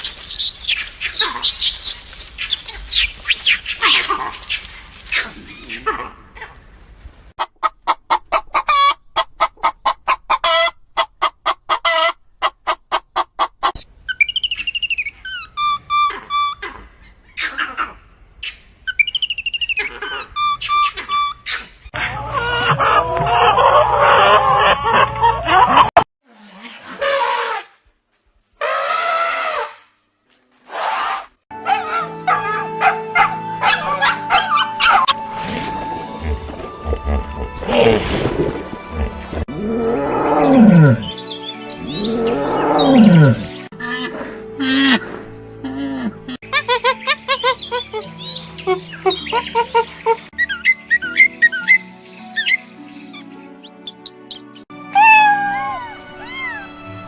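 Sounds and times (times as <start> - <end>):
background music: 31.5 - 57.0
dog calling: 31.6 - 35.2.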